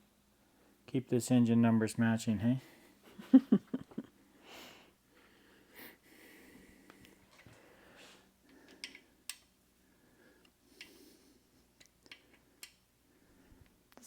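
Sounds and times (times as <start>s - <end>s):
faint breaths: 4.2s - 13.9s.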